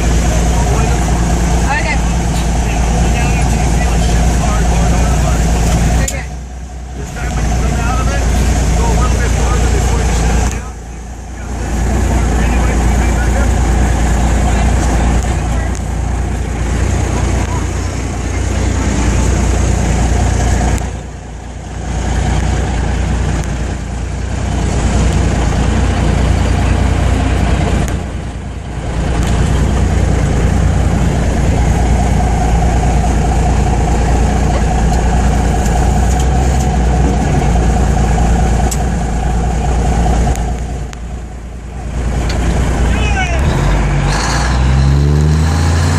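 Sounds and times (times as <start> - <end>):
tires spinning: 0.0 - 45.9
truck engine revving hard: 0.0 - 45.9.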